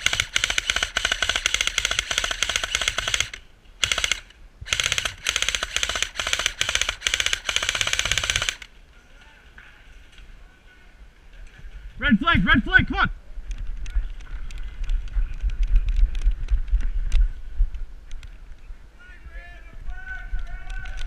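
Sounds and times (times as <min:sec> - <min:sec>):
airsoft gun firing full auto: 0:00.0 - 0:08.7.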